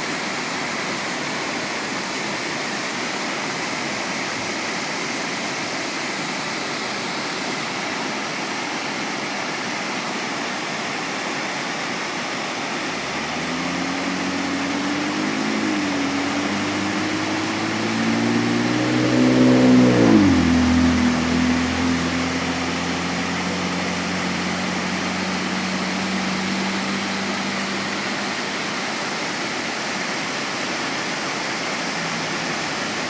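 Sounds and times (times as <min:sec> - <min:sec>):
waterfall rushing: 0:00.0 - 0:33.0
engine hum rising in pitch: 0:12.7 - 0:33.0.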